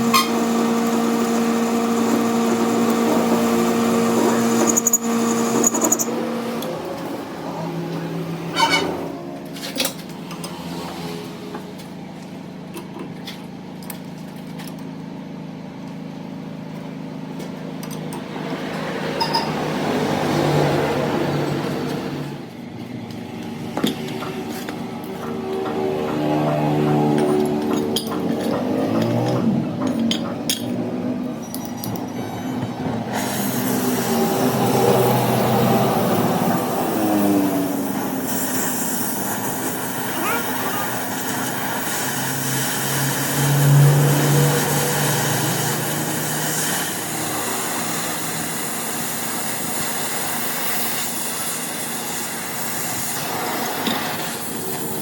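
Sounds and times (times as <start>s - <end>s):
motor humming: 0.0s - 9.2s.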